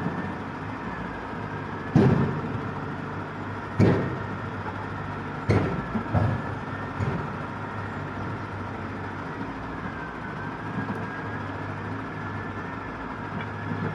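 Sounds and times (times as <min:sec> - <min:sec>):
dump truck engine running: 0:00.0 - 0:13.9
knocks: 0:03.8 - 0:04.4, 0:05.4 - 0:07.5.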